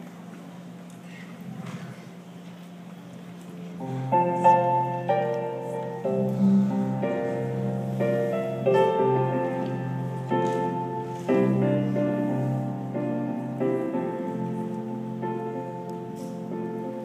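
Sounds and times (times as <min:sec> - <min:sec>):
piano playing slow chords: 0:03.8 - 0:17.0.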